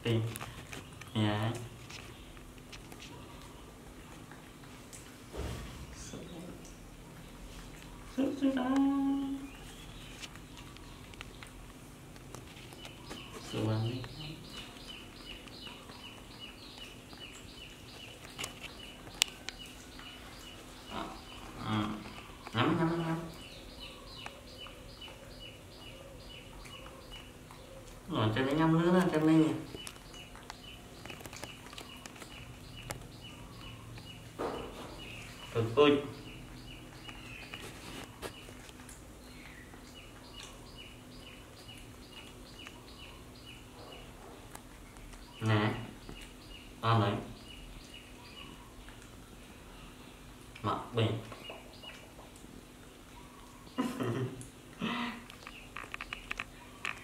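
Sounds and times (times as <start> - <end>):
bird chirping: 12.5 - 52.3, 53.0 - 57.0.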